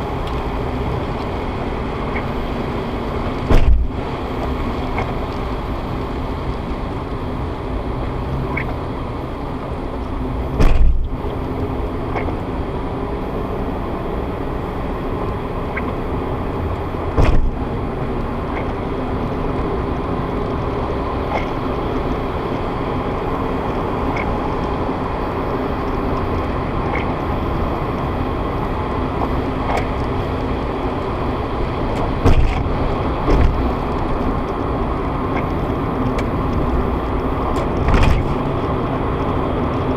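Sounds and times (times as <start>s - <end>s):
car road and engine noise: 0.0s - 39.9s
short thumps: 3.5s - 4.0s, 10.6s - 11.2s, 17.1s - 17.6s, 32.2s - 32.7s.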